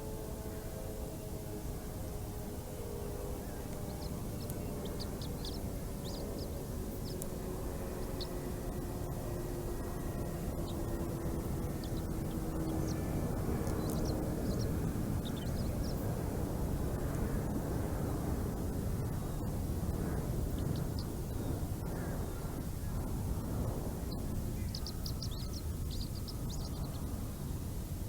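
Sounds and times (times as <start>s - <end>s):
faint hum: 0.0s - 28.0s
wind rumble on microphone: 0.0s - 28.0s
high bird chirps: 3.9s - 7.2s.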